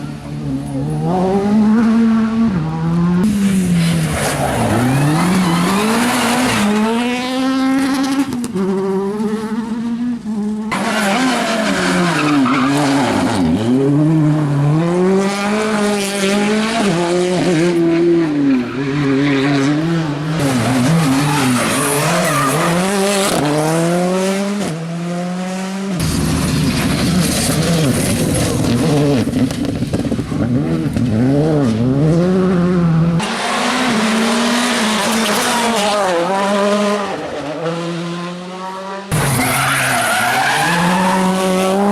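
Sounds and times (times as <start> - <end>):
rally car engine revving: 0.0 - 41.9.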